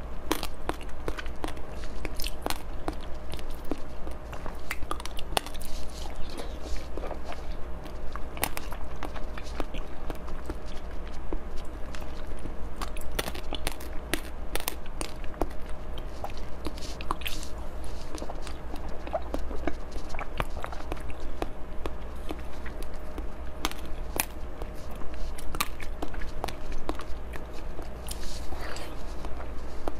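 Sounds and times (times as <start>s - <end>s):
steady low hum: 0.0s - 29.9s
crunchy chewing: 0.2s - 29.9s.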